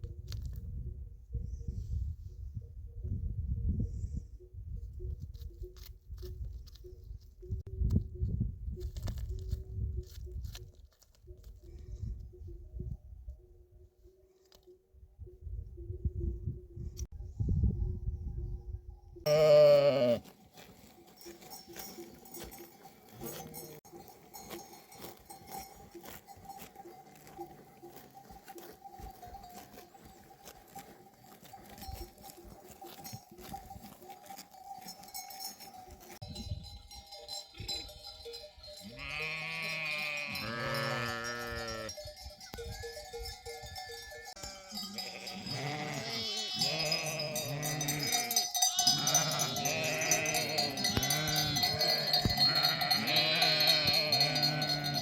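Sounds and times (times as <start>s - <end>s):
animal bells clinking: 18.9s - 55.0s
lambs and kids bleating: 19.3s - 20.4s, 38.8s - 41.9s, 44.2s - 55.0s.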